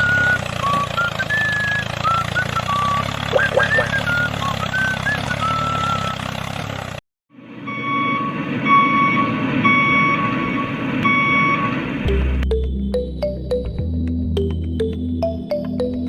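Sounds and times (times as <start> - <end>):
reversing beeper: 0.0 - 6.2, 7.6 - 12.6
engine noise: 0.0 - 13.7.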